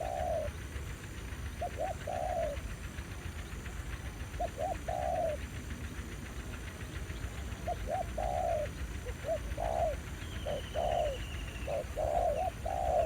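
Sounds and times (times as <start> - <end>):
dove cooing: 0.0 - 0.5, 1.6 - 2.6, 4.4 - 5.4, 7.7 - 13.0.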